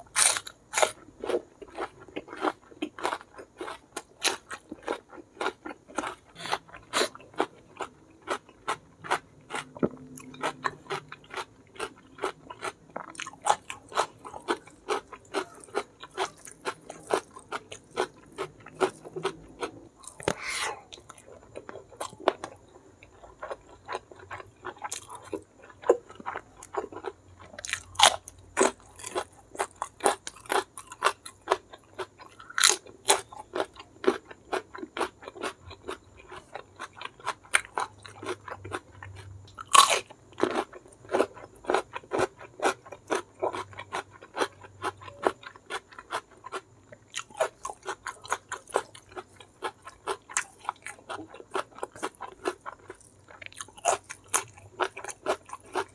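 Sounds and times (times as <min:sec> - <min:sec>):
wet chewing and crunching: 0:00.0 - 0:55.9.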